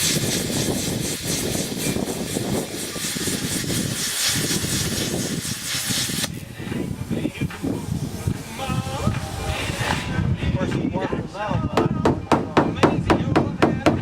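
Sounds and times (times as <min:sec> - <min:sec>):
plasma cutter cutting sheet metal: 0:00.0 - 0:10.2.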